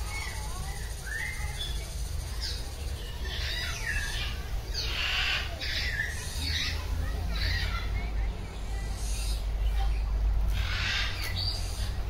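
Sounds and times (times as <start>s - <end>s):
birds squawking: 0.0s - 7.9s, 10.5s - 12.0s.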